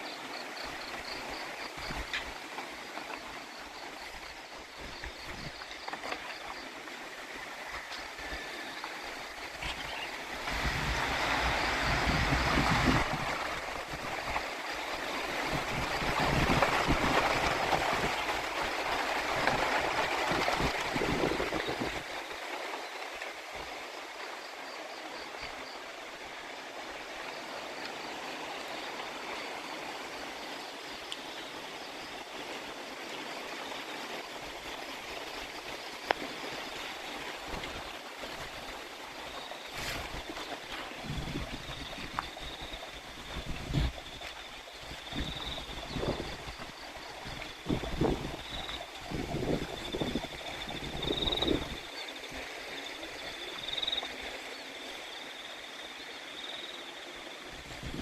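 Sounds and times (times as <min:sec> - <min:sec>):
wind buffeting microphone: 0:09.6 - 0:14.4, 0:41.0 - 0:51.9, 0:57.6 - 0:58.0.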